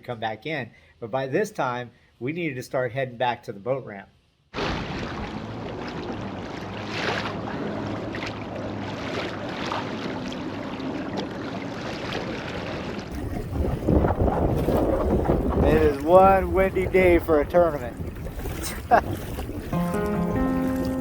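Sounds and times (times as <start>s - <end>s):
wind and water rushing: 4.6s - 21.0s
wind buffeting microphone: 12.8s - 20.9s.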